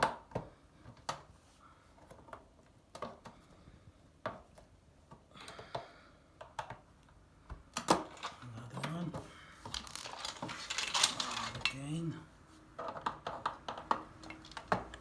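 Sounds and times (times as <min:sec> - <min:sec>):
scraping: 0:09.7 - 0:11.9.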